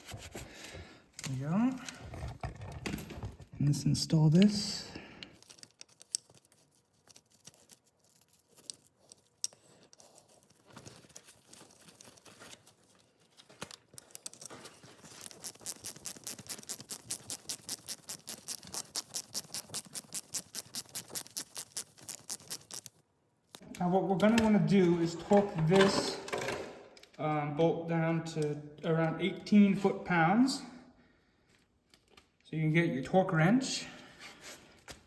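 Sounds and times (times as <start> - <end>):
hand ratchet clicking: 15.2 - 22.9.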